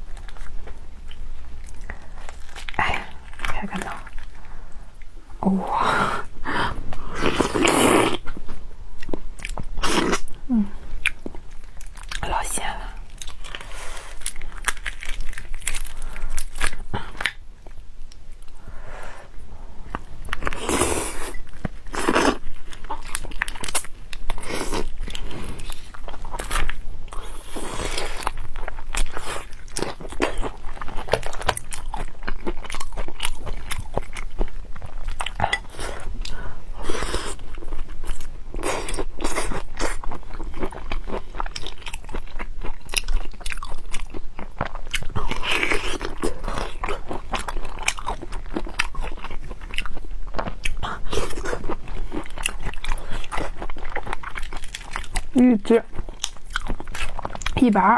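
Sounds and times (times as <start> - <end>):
chewing and biting prawns: 11.0 - 17.4, 20.0 - 57.9.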